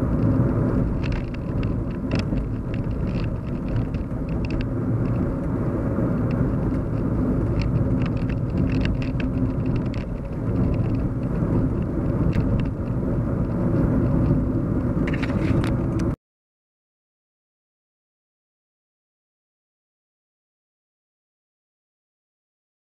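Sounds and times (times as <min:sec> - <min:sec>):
car cabin road rumble: 0:00.0 - 0:16.2.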